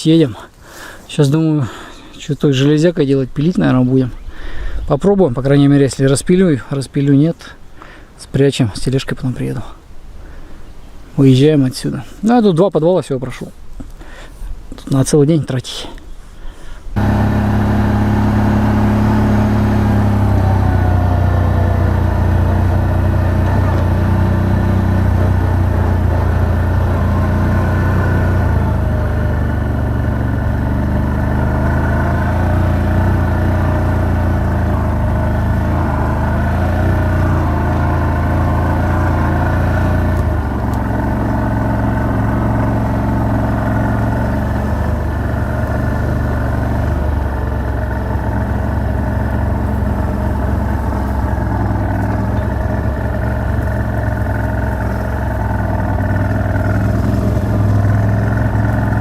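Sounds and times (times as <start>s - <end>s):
vehicle engine running: 17.0s - 59.0s.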